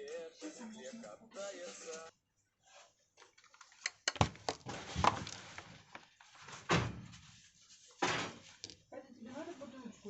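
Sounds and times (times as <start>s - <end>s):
knocks and rustling: 3.2s - 8.9s
thump: 6.7s - 7.2s, 8.0s - 8.5s.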